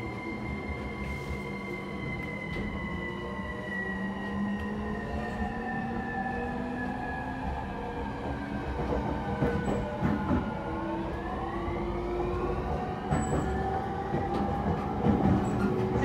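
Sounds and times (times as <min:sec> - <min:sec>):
wheels rumbling on rail: 0:08.2 - 0:16.0.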